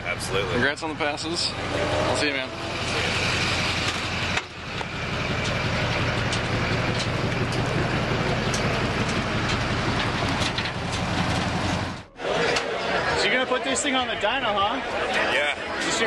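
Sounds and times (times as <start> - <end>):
engine running with pulsing note: 0.0 - 12.1
road or wind noise: 0.0 - 12.1.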